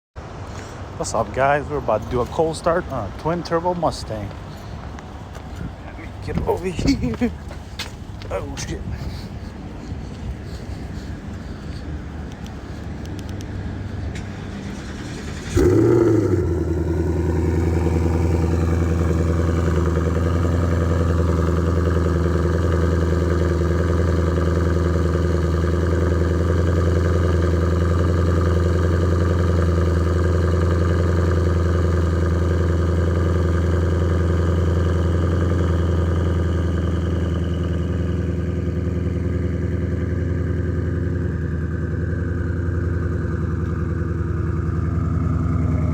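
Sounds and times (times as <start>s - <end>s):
engine revving and idling: 10.4s - 45.9s.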